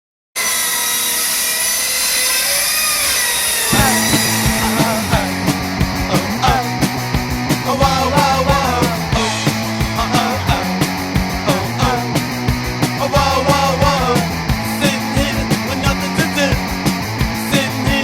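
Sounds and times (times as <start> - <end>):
chainsaw engine running: 2.8 - 18.0
punk rock band playing: 3.7 - 18.0.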